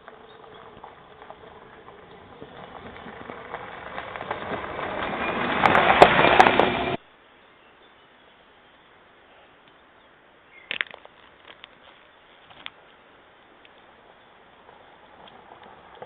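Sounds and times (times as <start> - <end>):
electric truck rolling over rough ground: 0.0 - 7.0, 14.0 - 16.0.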